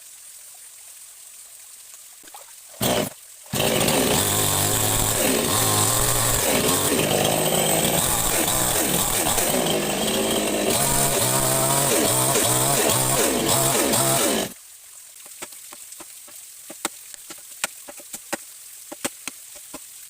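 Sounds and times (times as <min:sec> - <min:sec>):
chainsaw running: 0:02.8 - 0:14.6.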